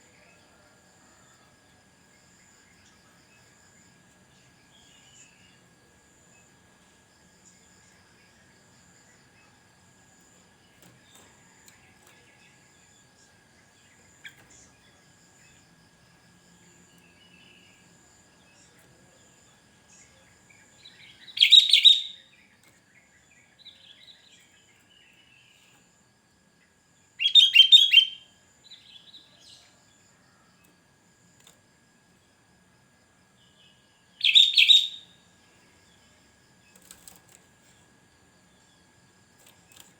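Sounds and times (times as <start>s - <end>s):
faint high insect-like tone: 0.0s - 39.9s
bird singing: 2.1s - 5.7s, 16.4s - 25.9s, 26.6s - 30.7s, 33.3s - 36.8s.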